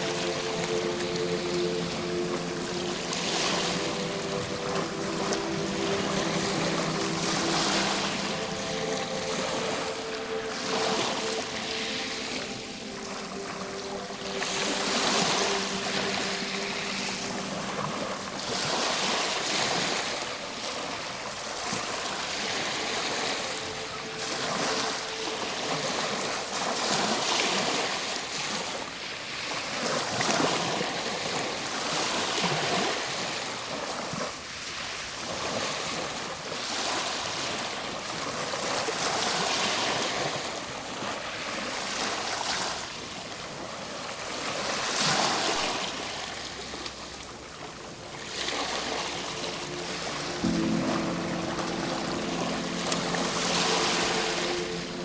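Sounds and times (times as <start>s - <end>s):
faint held music notes: 0.0s - 29.0s, 45.0s - 55.0s
ocean surf breaking on shore: 0.0s - 55.0s.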